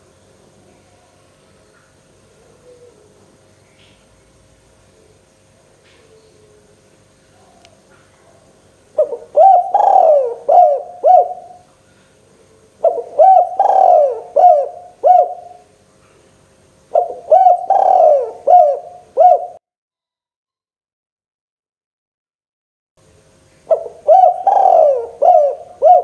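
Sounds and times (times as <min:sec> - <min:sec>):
dove cooing: 0:02.2 - 0:03.4, 0:05.9 - 0:11.7, 0:12.4 - 0:15.7, 0:16.9 - 0:19.6, 0:23.7 - 0:26.0.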